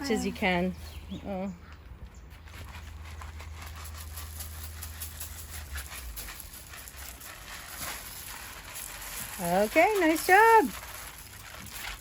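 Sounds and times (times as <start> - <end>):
rice pattering onto a deck: 2.9 - 12.0.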